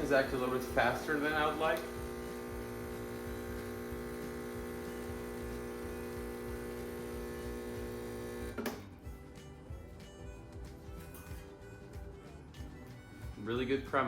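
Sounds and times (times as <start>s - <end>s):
espresso machine pump humming: 0.0s - 8.7s.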